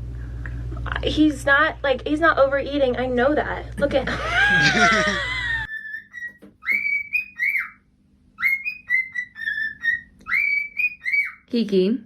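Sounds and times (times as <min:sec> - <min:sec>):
pet bird whistling: 0:05.7 - 0:11.5.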